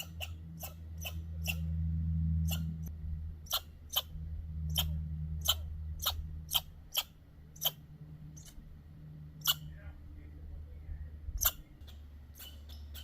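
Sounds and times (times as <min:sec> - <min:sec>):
dog whining: 0:00.0 - 0:01.7, 0:02.4 - 0:02.8
low hum: 0:00.0 - 0:13.0.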